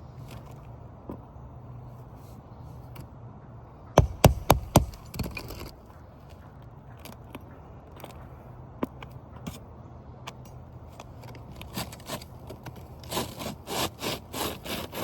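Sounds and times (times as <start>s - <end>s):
gritty scraping on shingle: 4.0s - 6.4s, 10.9s - 15.0s.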